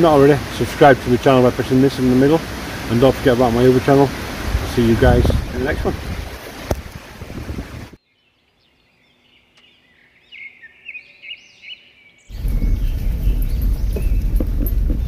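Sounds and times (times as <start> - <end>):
rushing noise with low rumble: 2.4 - 8.0, 12.3 - 15.0
small birds chirping: 8.0 - 15.0.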